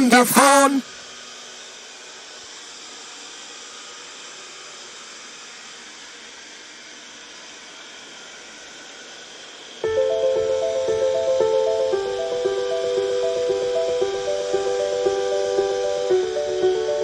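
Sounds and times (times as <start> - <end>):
music with clear notes: 9.8 - 17.0
steady hiss: 9.8 - 17.0.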